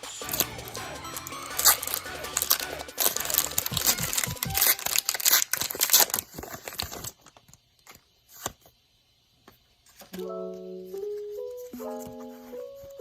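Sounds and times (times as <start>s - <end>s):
plastic foil tearing and crinkling: 0.2s - 8.6s.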